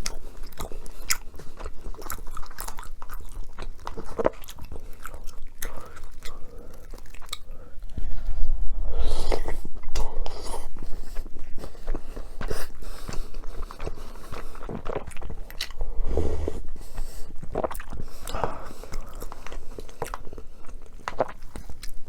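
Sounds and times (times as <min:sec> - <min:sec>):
person biting and chewing food: 0:00.0 - 0:08.0, 0:09.1 - 0:15.8.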